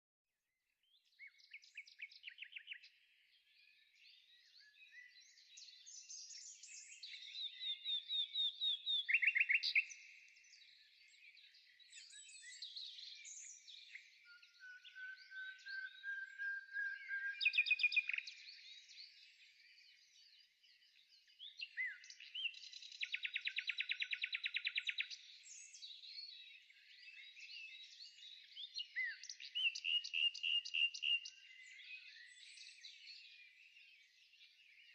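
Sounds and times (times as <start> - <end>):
songbirds singing: 0.8 - 34.9
slow rising bird whistle: 14.2 - 18.2.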